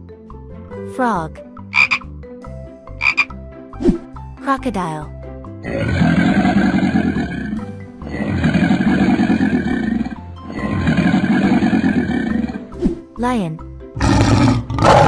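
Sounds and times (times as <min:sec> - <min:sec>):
background music: 0:00.0 - 0:15.0
crocodile growling: 0:05.6 - 0:12.8, 0:14.0 - 0:15.0.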